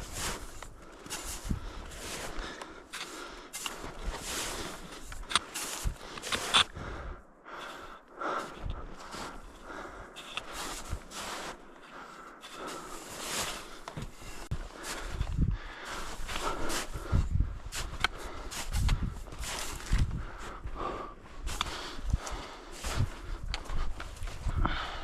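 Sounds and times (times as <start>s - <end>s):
rustling and scuffing: 12.5s - 15.2s
wind buffeting microphone: 14.5s - 20.8s.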